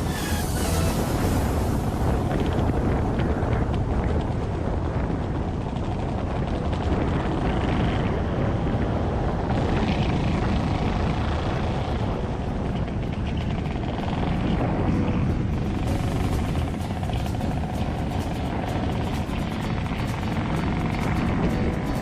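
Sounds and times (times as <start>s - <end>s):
wind rumble on microphone: 0.0s - 22.0s
scooter engine running: 15.8s - 22.0s.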